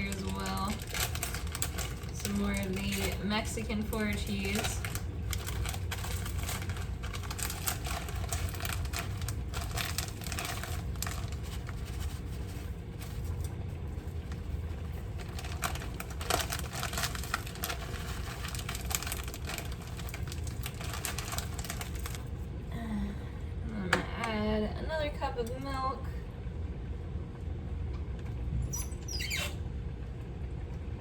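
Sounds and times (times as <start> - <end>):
plastic bag crinkling: 0.0 - 22.5
low steady hum: 0.0 - 31.0.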